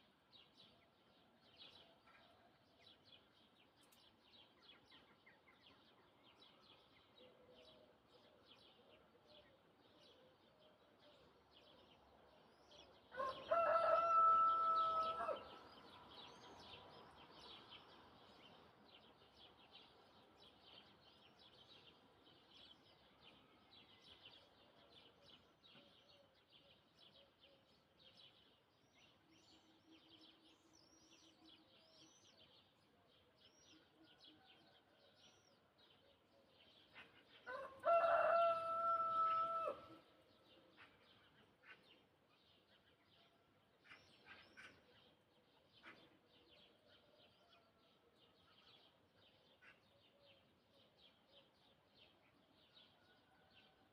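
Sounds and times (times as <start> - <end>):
small birds chirping: 0.0 - 9.8, 11.1 - 52.6
rooster crowing: 13.2 - 15.6, 37.5 - 39.9.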